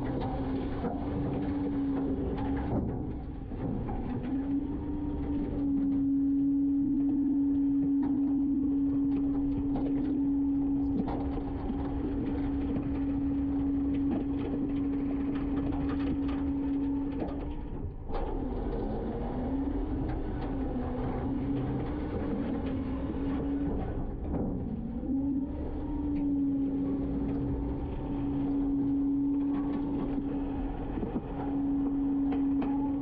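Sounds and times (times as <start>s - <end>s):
garbage truck hydraulic whine: 0.0s - 33.0s
knocks and clatter: 0.0s - 33.0s.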